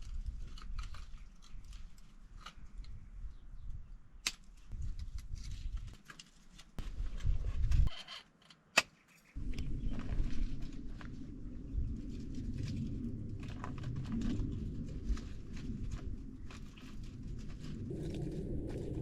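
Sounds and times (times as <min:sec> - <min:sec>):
low rumbling noise: 0:09.4 - 0:19.0.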